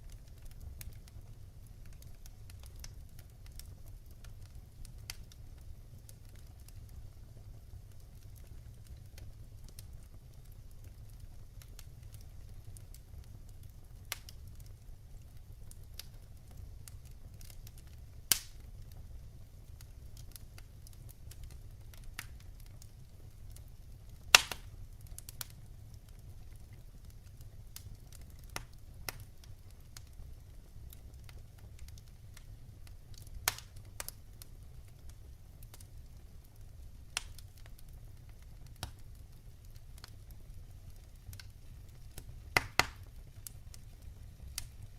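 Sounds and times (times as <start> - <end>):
wood fire crackling and popping: 0.0 - 44.9.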